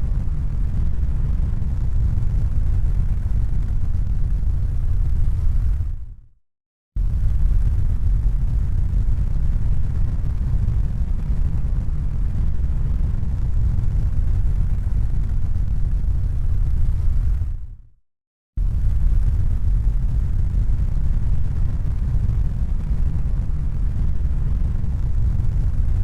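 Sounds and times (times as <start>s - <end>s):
deep rumbling noise: 7.0s - 17.7s, 18.6s - 26.0s.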